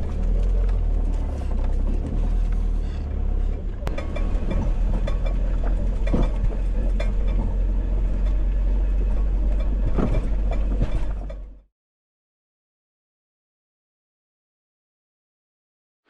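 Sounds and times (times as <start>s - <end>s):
rattles and knocks: 0.0s - 11.6s
engine and road rumble: 0.0s - 11.7s.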